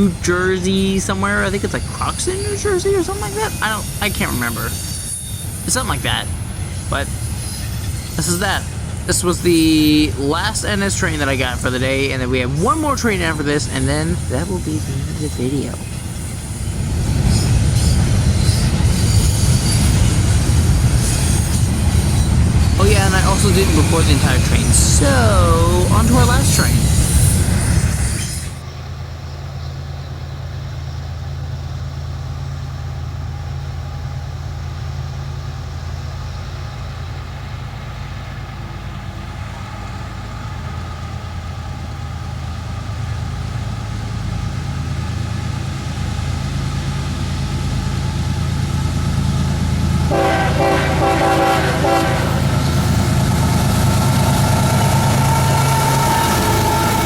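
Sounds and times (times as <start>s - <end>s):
diesel locomotive engines droning: 0.0s - 57.0s
high steady train tones: 0.0s - 57.0s
locomotive horn: 50.0s - 57.0s.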